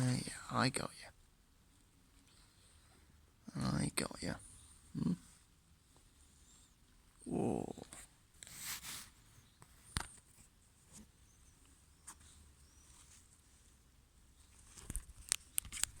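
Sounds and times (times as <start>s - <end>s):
faint rustling: 4.3s - 16.0s
small clicks and taps: 14.7s - 16.0s.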